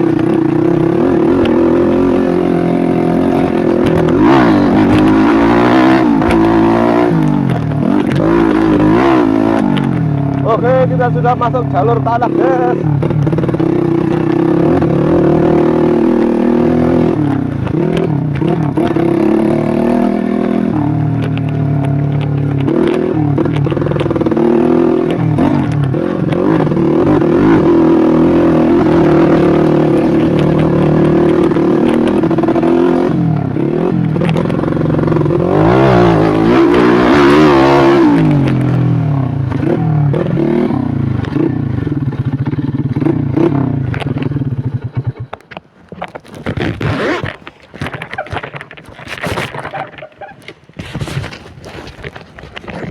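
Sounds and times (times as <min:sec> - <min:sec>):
bike rattling over rough ground: 0:00.0 - 0:52.9
motorcycle engine revving: 0:00.0 - 0:52.9.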